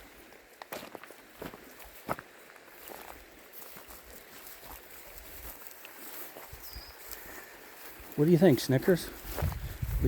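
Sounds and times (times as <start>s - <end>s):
footsteps on forest floor: 0.0s - 10.0s.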